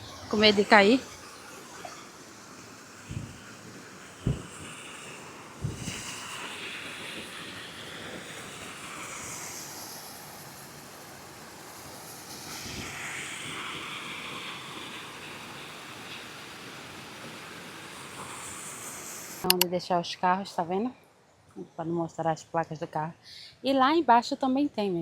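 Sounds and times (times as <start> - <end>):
wind rushing over microphone: 3.0 - 9.6
low knocks: 3.1 - 3.4, 4.2 - 4.7.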